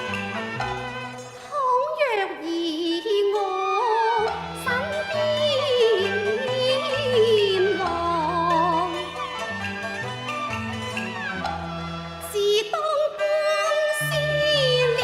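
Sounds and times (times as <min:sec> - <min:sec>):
instrumental accompaniment: 0:00.0 - 0:02.6, 0:03.2 - 0:15.0
opera singing with vibrato: 0:01.5 - 0:09.2, 0:12.2 - 0:15.0.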